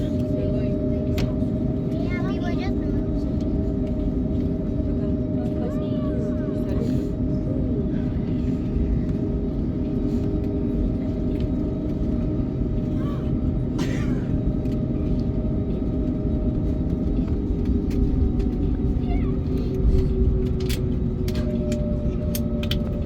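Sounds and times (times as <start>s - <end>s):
aircraft cabin engine rumble: 0.0s - 23.0s
constant hum: 0.0s - 23.0s.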